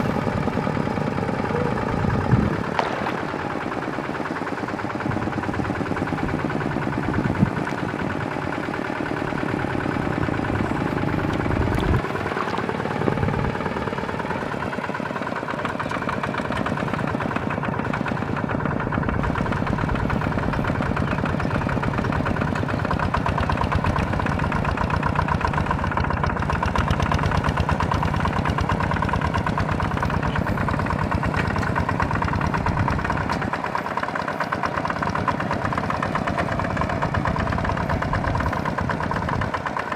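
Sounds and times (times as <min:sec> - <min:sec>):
small tractor engine running: 0:00.0 - 0:39.9
sharp knocks: 0:02.7 - 0:03.5.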